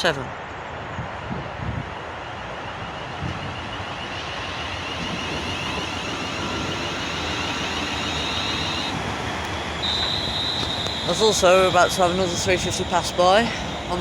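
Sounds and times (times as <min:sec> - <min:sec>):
train high whine: 0:00.6 - 0:14.0
electric train rumbling: 0:00.7 - 0:14.0.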